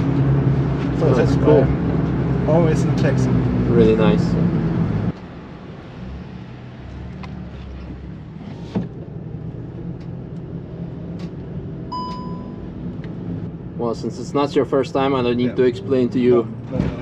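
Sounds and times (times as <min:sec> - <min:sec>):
short electronic beep: 0:11.9 - 0:12.7.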